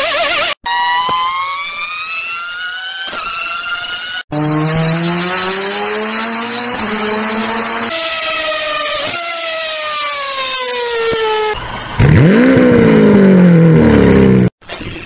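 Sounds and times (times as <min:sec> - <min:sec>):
high-revving car engine accelerating: 0:04.3 - 0:07.9, 0:11.6 - 0:14.5.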